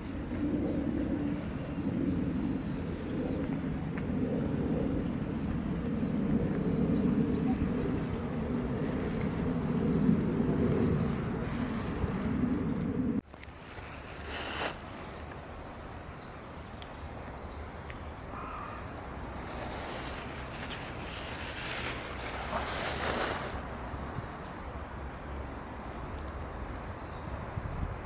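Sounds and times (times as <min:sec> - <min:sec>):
steady background hiss: 0:13.5 - 0:27.2.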